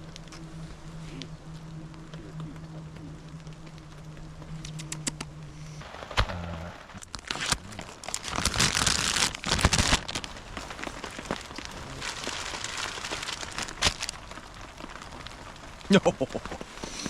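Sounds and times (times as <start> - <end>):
low steady hum: 0.0 - 17.0
plastic packaging crinkling: 7.0 - 17.0.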